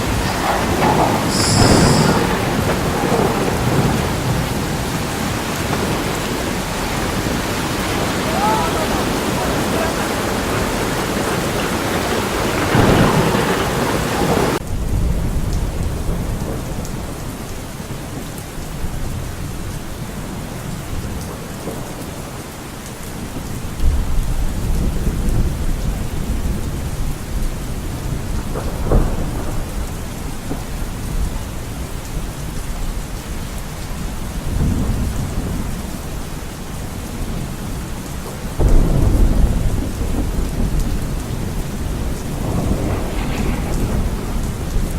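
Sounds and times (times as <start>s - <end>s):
low thunder rolls: 0.0s - 22.1s, 23.4s - 44.9s
bright hiss of rain: 0.0s - 44.9s
steady rain: 0.0s - 44.9s.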